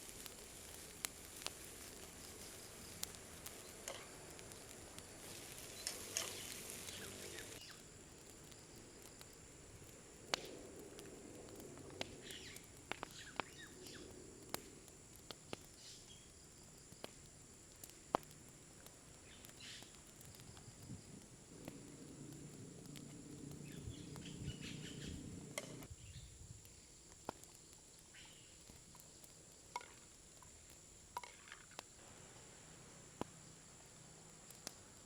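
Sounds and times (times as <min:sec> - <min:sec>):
high insect drone: 0:00.0 - 0:09.8, 0:19.3 - 0:27.0, 0:31.9 - 0:35.0
birds chirping: 0:05.6 - 0:07.8, 0:22.8 - 0:26.2.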